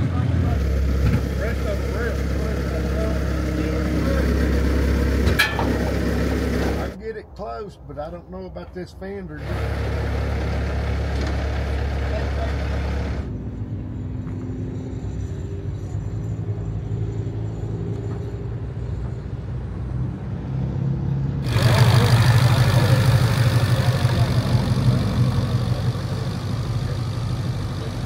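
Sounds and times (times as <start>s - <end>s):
car engine idling: 0.0s - 7.0s, 9.4s - 13.3s, 21.4s - 28.0s
loud engine running: 0.0s - 7.0s, 9.4s - 14.4s, 21.4s - 28.0s.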